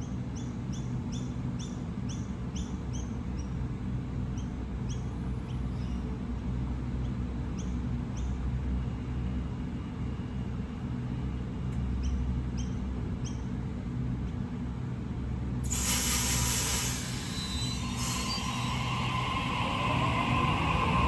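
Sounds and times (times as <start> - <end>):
train rumbling: 0.1 - 21.0
loud rush of hiss: 15.6 - 21.0
high wheel squeal: 15.7 - 21.0.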